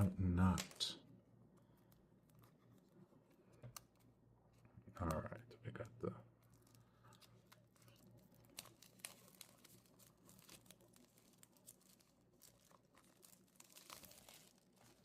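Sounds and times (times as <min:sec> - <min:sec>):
plastic shrink wrap crinkling: 0:06.3 - 0:15.0.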